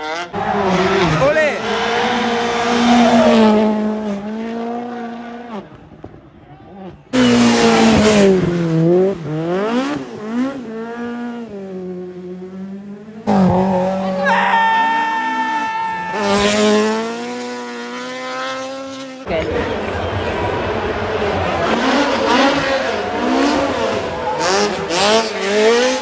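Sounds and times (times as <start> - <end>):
rally car engine revving: 0.0 - 26.0
car engine at steady revs: 6.8 - 14.2, 16.5 - 26.0.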